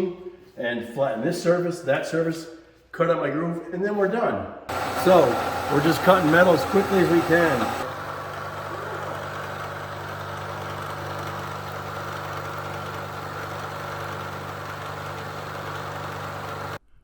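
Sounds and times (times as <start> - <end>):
milling machine cutting steel: 4.7 - 16.8.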